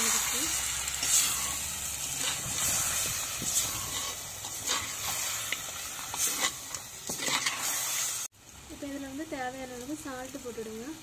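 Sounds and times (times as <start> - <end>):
food sizzling in a clay pot: 0.0 - 11.0
spoon scraping and knocking pot: 3.4 - 7.7.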